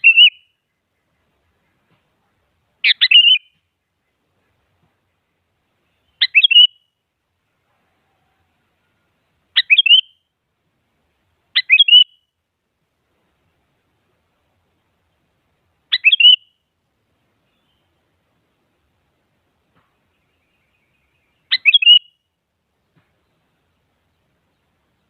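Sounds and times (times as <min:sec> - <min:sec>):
bird calling: 0:00.0 - 0:02.1, 0:02.8 - 0:04.6, 0:05.9 - 0:06.9, 0:09.5 - 0:10.2, 0:11.6 - 0:12.3, 0:15.9 - 0:16.6, 0:19.8 - 0:22.2.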